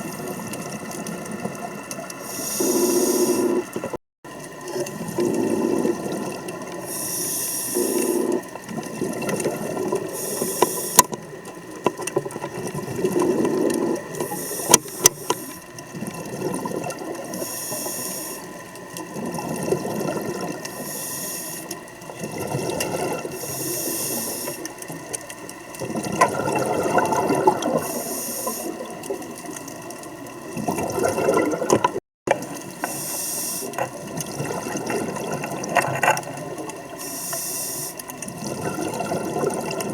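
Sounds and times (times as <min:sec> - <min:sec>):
exhaled bubbles burbling: 0:00.0 - 0:06.9, 0:07.8 - 0:17.5, 0:18.5 - 0:20.8, 0:21.9 - 0:33.0, 0:33.6 - 0:37.1, 0:38.1 - 0:39.9
regulator inhale hiss: 0:02.2 - 0:03.7, 0:06.8 - 0:08.4, 0:10.1 - 0:11.1, 0:14.2 - 0:15.6, 0:17.3 - 0:18.5, 0:20.6 - 0:21.8, 0:23.3 - 0:24.7, 0:27.8 - 0:28.8, 0:32.8 - 0:33.9, 0:37.0 - 0:38.1.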